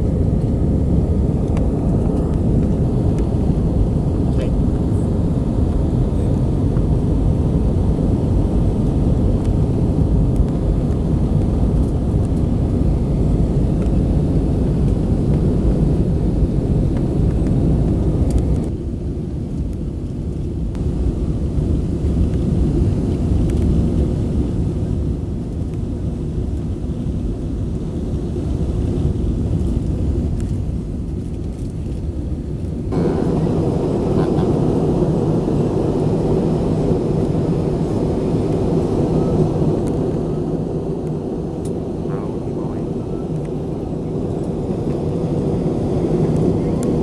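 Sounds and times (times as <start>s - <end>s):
jet engine rumble in cabin: 0.0s - 47.0s
rushing air: 32.8s - 47.0s.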